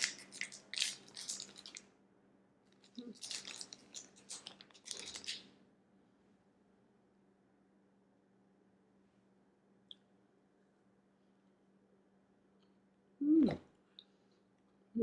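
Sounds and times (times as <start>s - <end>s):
snack crinkling and crunching: 0.0s - 1.9s, 2.7s - 5.5s.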